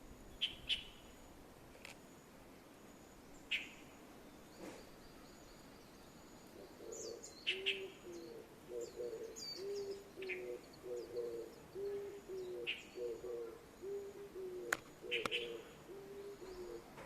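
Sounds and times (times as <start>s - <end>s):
low repeated bird call: 0.0s - 1.4s, 2.1s - 17.0s
sharp bird calls: 0.3s - 1.2s, 3.4s - 3.9s, 4.6s - 17.0s.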